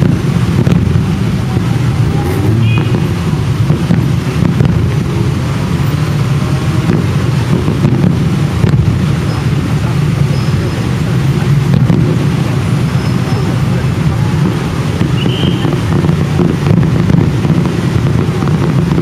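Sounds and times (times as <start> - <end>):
rumble of firework bursts: 0.0 - 19.0.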